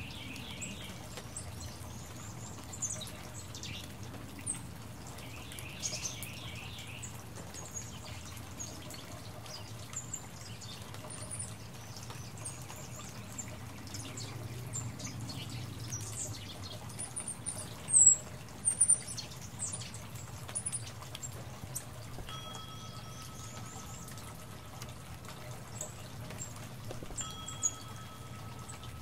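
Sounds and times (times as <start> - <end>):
songbirds chirping: 0.0 - 29.0.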